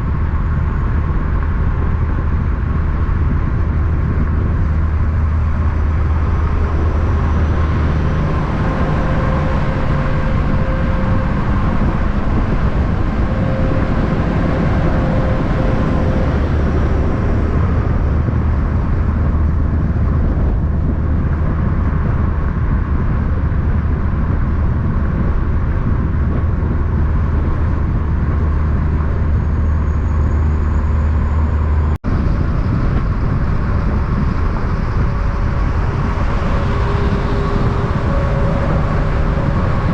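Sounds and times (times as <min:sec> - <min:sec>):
truck traffic rumble: 0:00.0 - 0:39.9.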